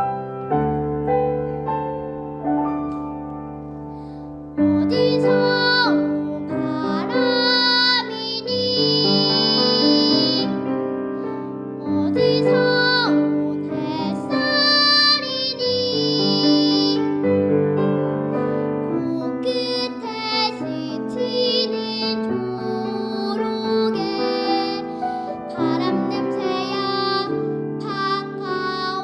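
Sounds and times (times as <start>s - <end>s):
girl singing: 4.6s - 10.8s, 11.8s - 17.4s, 18.8s - 29.0s.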